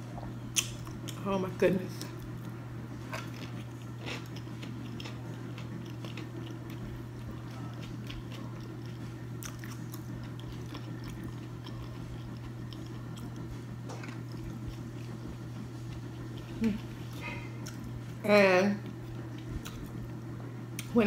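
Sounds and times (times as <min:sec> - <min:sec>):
steady low hum: 0:00.0 - 0:21.0
close chewing: 0:03.1 - 0:18.2, 0:18.8 - 0:20.0.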